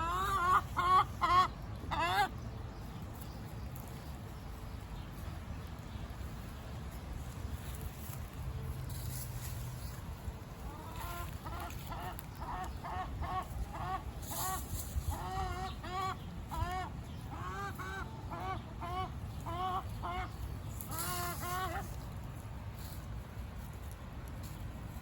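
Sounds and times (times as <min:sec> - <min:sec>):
chicken squawking: 0:00.0 - 0:02.3, 0:10.7 - 0:22.0
steady low rumble: 0:00.0 - 0:25.0.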